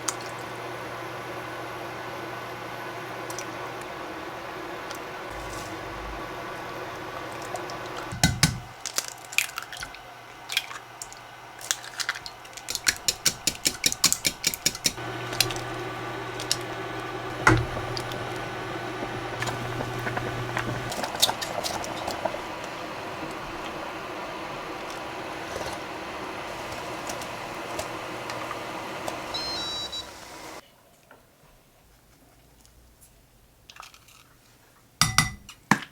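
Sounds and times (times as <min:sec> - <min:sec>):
low steady hum: 0:05.2 - 0:08.7, 0:10.5 - 0:30.6.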